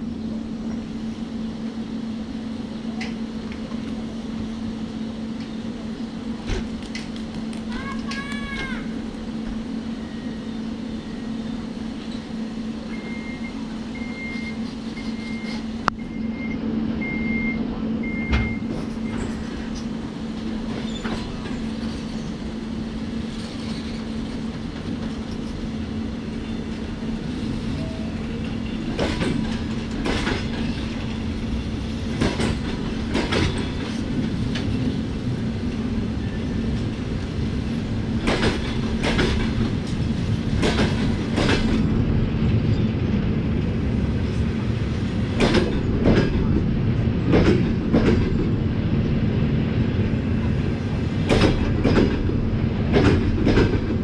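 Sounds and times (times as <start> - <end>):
short beeps: 13.0 - 18.7
train wheels clacking over rail joints: 28.4 - 34.9, 38.2 - 41.9, 45.3 - 46.6, 47.3 - 48.6, 51.2 - 54.0.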